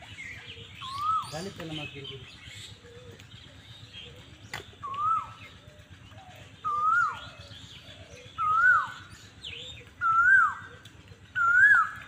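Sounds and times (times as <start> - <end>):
bird whistle calls: 0.3 - 2.8, 4.5 - 5.7, 6.4 - 12.0.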